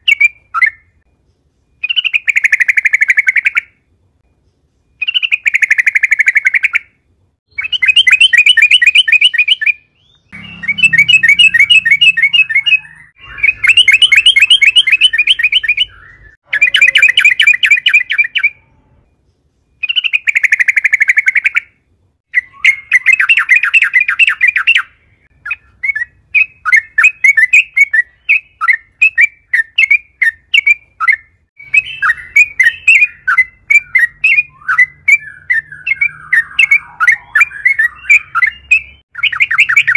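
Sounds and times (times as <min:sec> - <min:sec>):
bird chirps: 0:00.0 - 0:39.9
bird singing bubbling notes: 0:07.5 - 0:19.1, 0:19.8 - 0:39.9.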